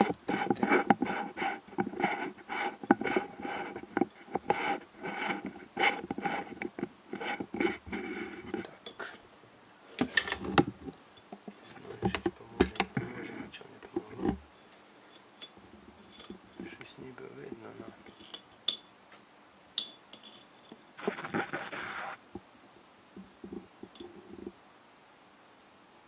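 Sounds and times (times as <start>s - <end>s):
scraping strokes: 0.0s - 8.8s, 17.4s - 18.4s, 20.2s - 22.2s
sharp clicks and knocks: 10.0s - 13.1s.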